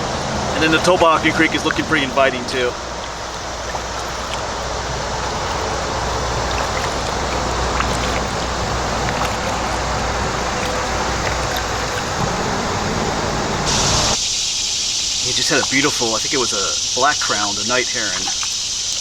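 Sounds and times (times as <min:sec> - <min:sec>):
low rumble: 0:00.0 - 0:14.2
rushing water: 0:00.0 - 0:14.2, 0:15.2 - 0:19.0
wind noise on microphone: 0:00.0 - 0:14.2
light drips or ticks: 0:00.6 - 0:12.3, 0:17.1 - 0:19.0.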